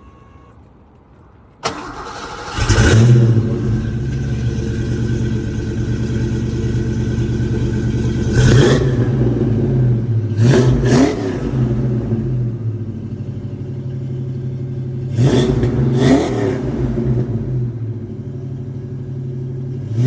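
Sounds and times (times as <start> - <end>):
engine cranking: 1.6 - 5.4
car engine idling loudly: 2.7 - 10.4.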